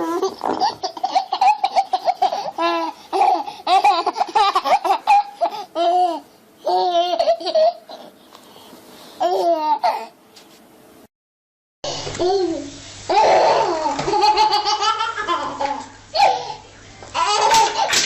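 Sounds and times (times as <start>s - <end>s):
baby laughing: 0.0s - 8.1s, 9.2s - 10.1s, 13.1s - 18.0s.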